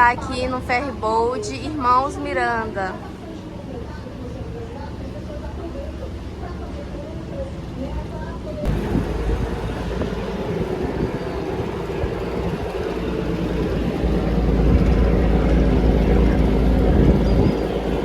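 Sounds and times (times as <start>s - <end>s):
ferry engine humming: 0.0s - 18.0s.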